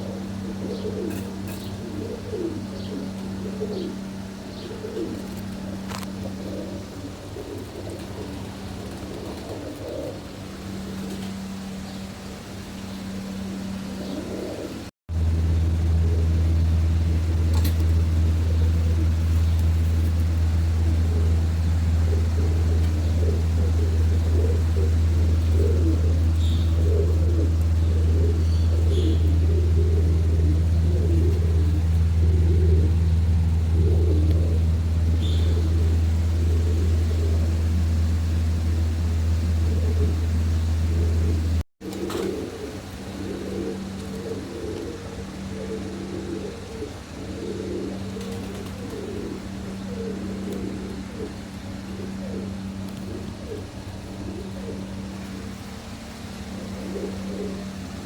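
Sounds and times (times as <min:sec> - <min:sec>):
loud low machine hum: 0:00.0 - 0:58.0
pigeons cooing: 0:00.0 - 0:58.0.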